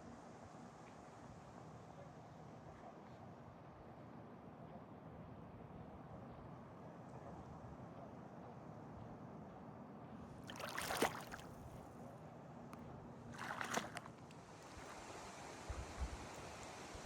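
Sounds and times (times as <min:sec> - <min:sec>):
faint outdoor background: 0:00.0 - 0:17.0
paddle splashing in water: 0:10.5 - 0:11.7, 0:13.3 - 0:15.0.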